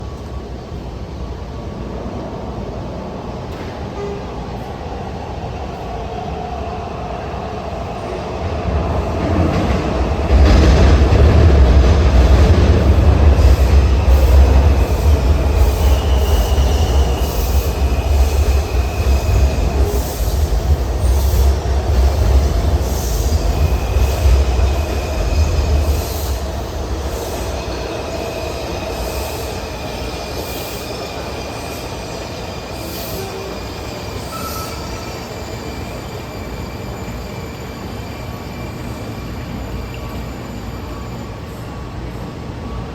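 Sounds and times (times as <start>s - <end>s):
train rumble: 0.0s - 42.9s
rail clatter: 8.4s - 29.3s
wheel and brake squeals: 32.8s - 41.5s.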